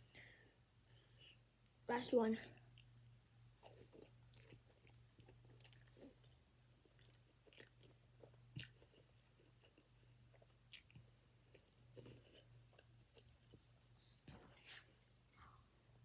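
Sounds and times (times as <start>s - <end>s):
low steady hum: 0.0s - 16.0s
faint chewing: 2.6s - 15.6s
mouth clicks and smacks: 3.6s - 11.1s.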